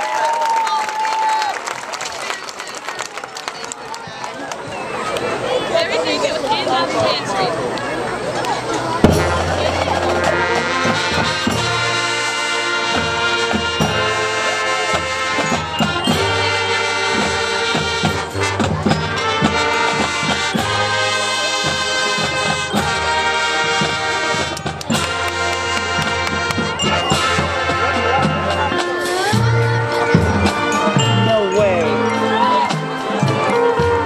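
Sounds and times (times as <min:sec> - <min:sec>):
brass chords: 0:08.9 - 0:34.0
drumline hits: 0:09.0 - 0:34.0.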